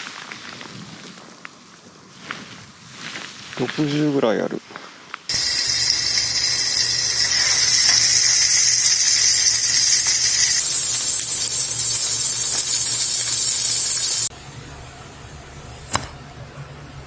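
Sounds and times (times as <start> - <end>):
fish sizzling in hot oil: 5.3 - 14.3.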